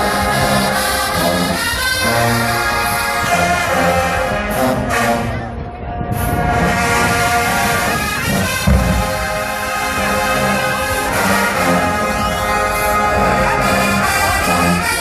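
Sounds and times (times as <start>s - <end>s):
brass horns holding chords: 0.0s - 15.0s
heavy low drum hit: 8.5s - 10.2s.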